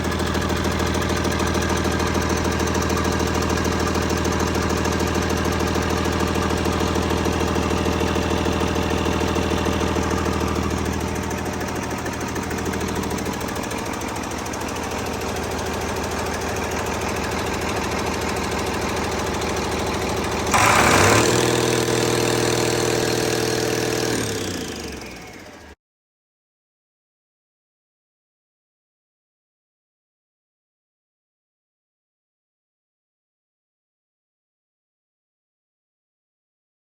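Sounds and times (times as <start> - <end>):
diesel engine idling and revving: 0.0 - 25.8.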